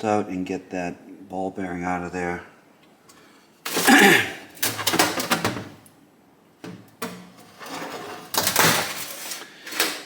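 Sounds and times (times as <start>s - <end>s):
tools clattering on metal parts: 8.3s - 10.0s.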